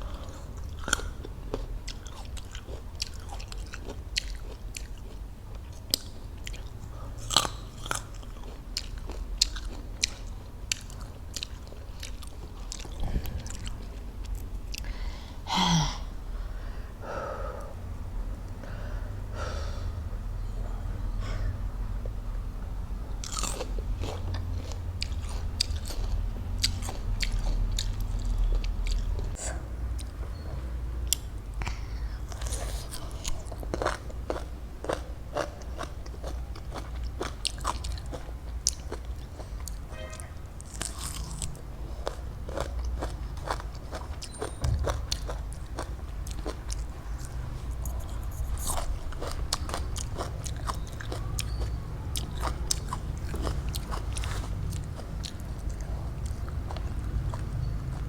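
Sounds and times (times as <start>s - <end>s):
chewing crunchy fruit: 0.0s - 14.9s, 23.2s - 30.2s, 32.1s - 58.0s
low hum: 12.4s - 25.6s, 44.6s - 49.2s.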